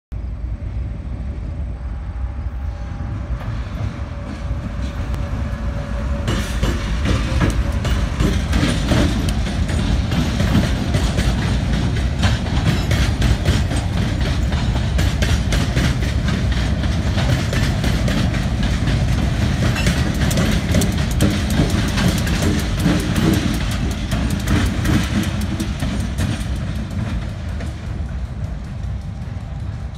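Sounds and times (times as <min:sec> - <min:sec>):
low train rumble: 0:00.1 - 0:29.9
diesel locomotive passing: 0:00.2 - 0:29.9
wheels clicking over rail joints: 0:06.2 - 0:29.9.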